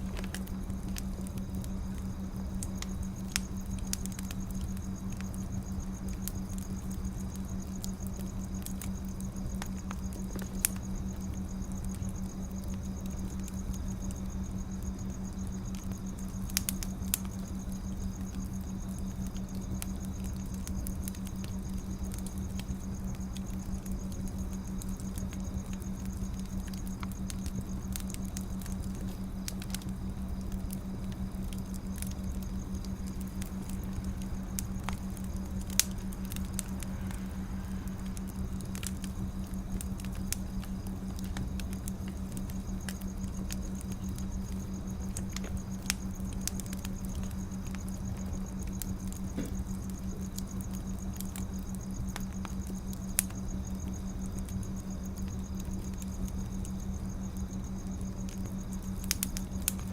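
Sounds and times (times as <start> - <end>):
steady low hum: 0.0 - 59.9
wood fire crackling and popping: 0.0 - 59.9.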